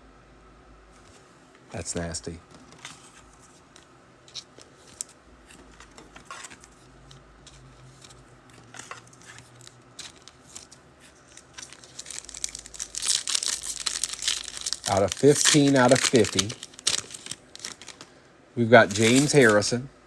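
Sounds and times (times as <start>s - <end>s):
cards clicking and rustling: 2.5s - 18.2s, 18.8s - 19.7s
wrappers crinkling: 4.3s - 19.8s.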